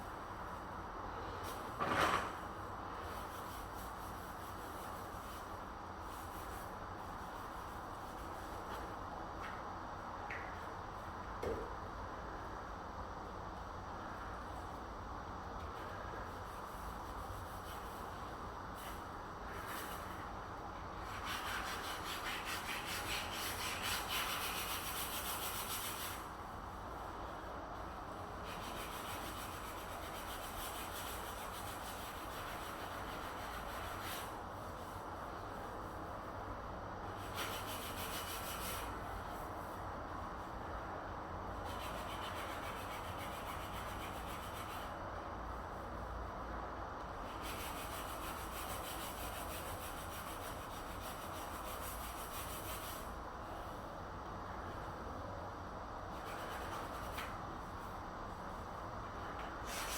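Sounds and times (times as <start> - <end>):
low background hum: 0.0 - 59.9.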